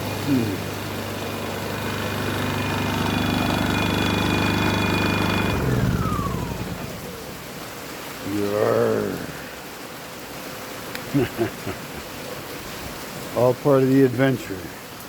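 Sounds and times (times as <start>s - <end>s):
engine whining down: 0.0s - 7.8s.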